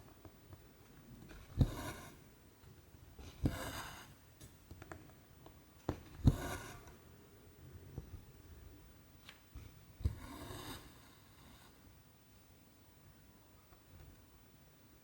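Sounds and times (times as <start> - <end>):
thread rasping through fabric: 1.2 - 2.2, 3.2 - 4.2, 5.9 - 7.0, 10.0 - 11.0
needle piercing fabric: 1.3 - 2.2, 3.2 - 4.2, 6.0 - 6.9.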